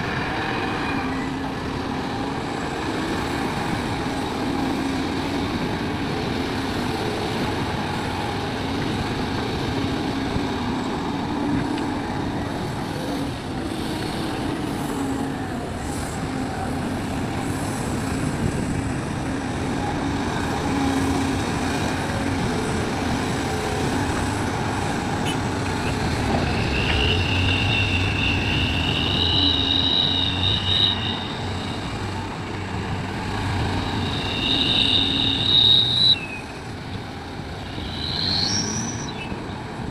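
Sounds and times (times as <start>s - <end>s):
excavator diesel engine running: 0.0s - 39.9s
high-pitched two-tone squeal: 19.3s - 32.5s, 33.2s - 39.6s.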